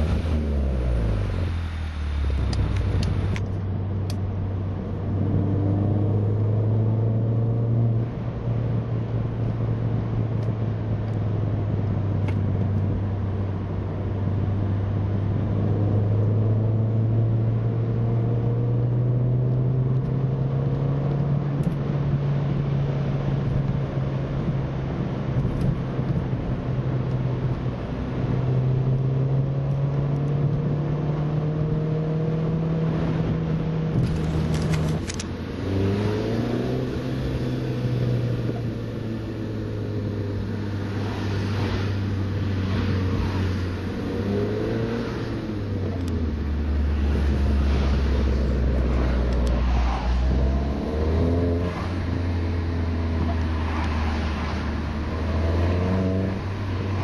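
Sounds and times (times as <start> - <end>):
car engine running: 32.4 - 57.0.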